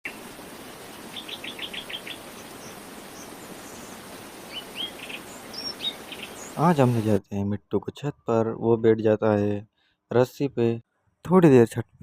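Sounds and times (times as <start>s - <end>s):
bird chirping: 0.1s - 7.0s
steady background hiss: 0.1s - 7.2s.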